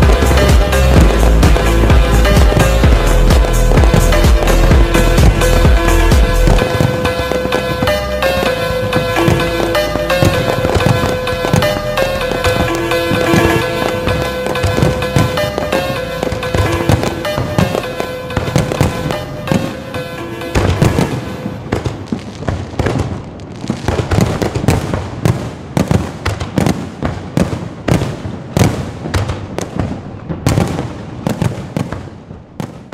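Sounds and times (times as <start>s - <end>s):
music with held notes: 0.0s - 21.7s
fireworks bursting and crackling: 0.0s - 32.9s.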